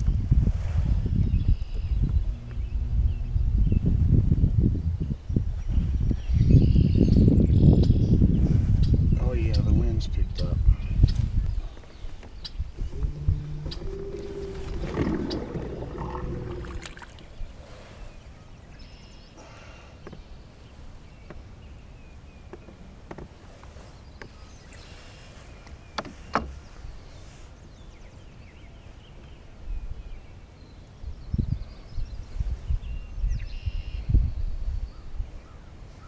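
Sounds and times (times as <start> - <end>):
wind buffeting microphone: 0.0 - 17.8, 31.0 - 35.6
faint bird chirps: 12.8 - 17.0.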